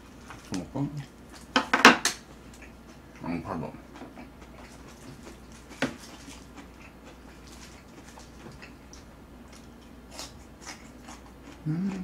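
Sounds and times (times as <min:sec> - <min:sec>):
person chewing with mouth full: 0:03.9 - 0:12.0.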